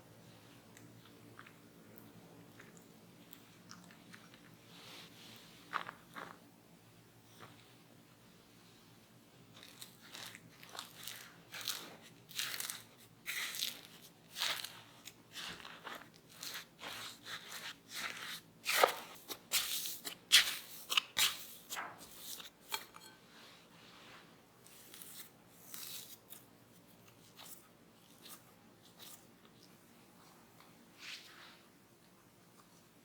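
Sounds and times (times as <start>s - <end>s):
potatoes being mashed: 9.6s - 23.2s.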